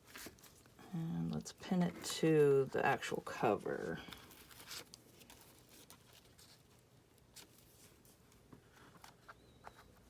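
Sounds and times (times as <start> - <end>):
paper rustling: 0.0 - 0.8, 2.9 - 10.0.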